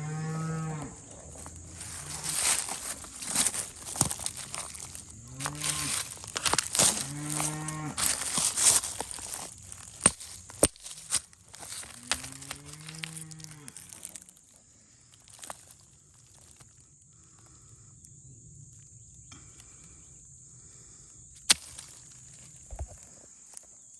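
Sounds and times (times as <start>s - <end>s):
cow mooing: 0.0s - 1.1s, 6.9s - 8.0s.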